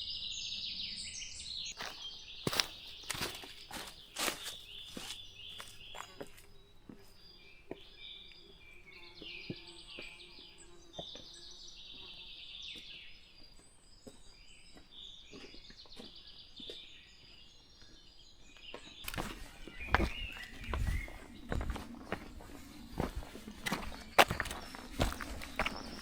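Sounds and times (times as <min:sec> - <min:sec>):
songbirds chirping and trilling: 0:00.0 - 0:26.0
footsteps close by: 0:01.8 - 0:07.9, 0:18.8 - 0:26.0.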